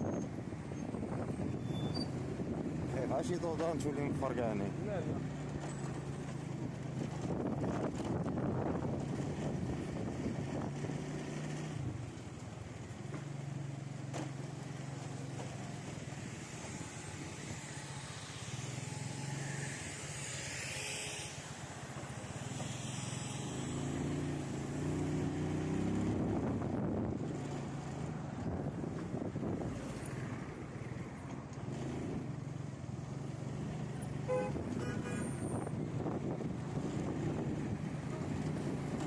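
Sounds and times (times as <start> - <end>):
road traffic: 0.0 - 39.0
engine revving: 22.9 - 26.8.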